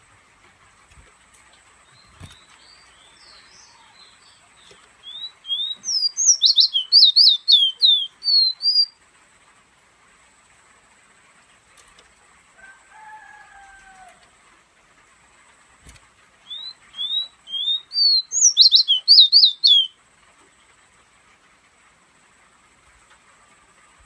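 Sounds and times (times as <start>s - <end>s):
songbird whistling song: 1.8s - 9.0s, 16.4s - 20.0s.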